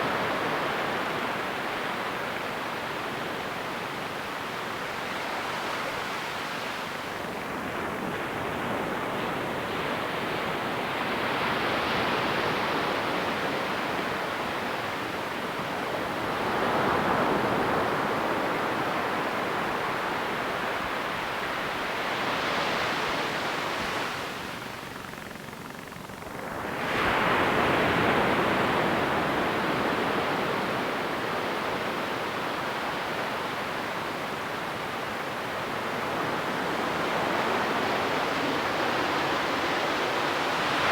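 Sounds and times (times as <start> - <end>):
ocean waves breaking on beach: 26.5 - 40.9.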